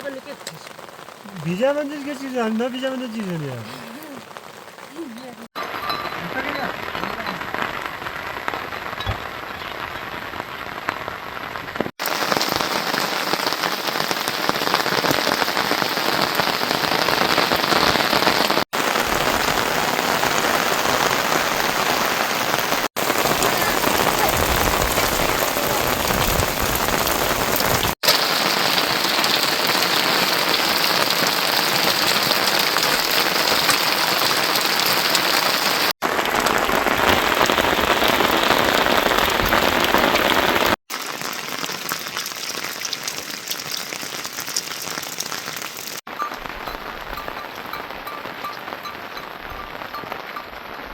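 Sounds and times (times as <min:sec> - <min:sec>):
heavy rain hissing: 0:00.0 - 0:50.9.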